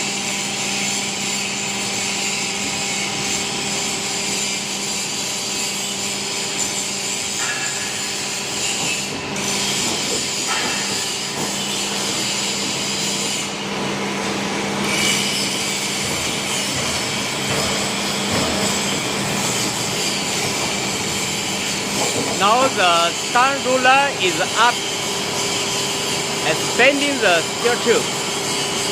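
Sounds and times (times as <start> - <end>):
bending machine hum: 7.1 - 28.9.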